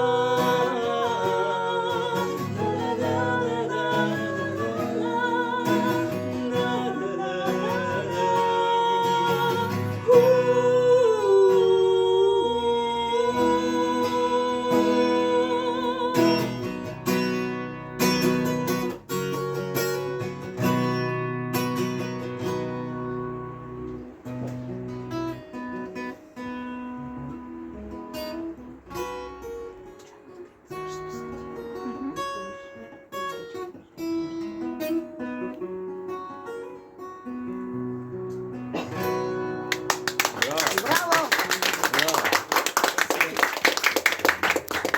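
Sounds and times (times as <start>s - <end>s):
person singing wordless melody: 0.0s - 16.6s
acoustic guitar strumming: 0.0s - 41.2s.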